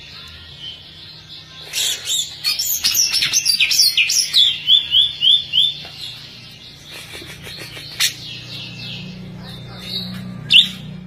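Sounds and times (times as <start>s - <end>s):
bird singing chirps and whistles: 0.0s - 6.6s, 9.8s - 10.9s.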